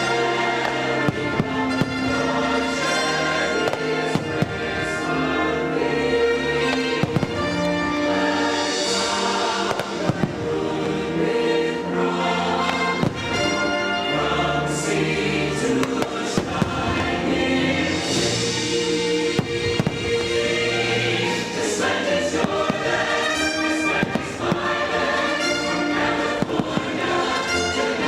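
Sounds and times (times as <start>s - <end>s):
firework bangs: 0.0s - 5.0s, 6.7s - 10.8s, 19.3s - 20.4s, 22.3s - 25.6s
choir singing with orchestra: 0.0s - 28.0s.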